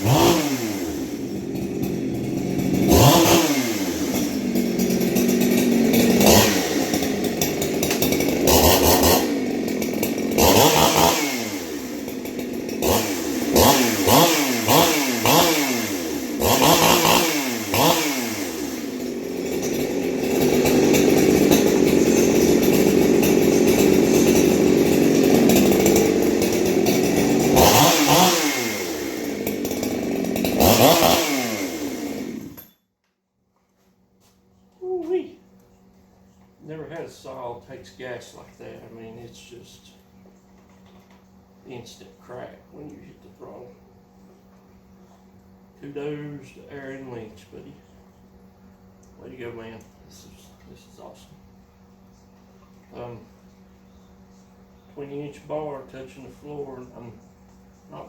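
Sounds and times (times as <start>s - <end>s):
chainsaw revving: 0.0s - 32.8s, 52.9s - 53.2s.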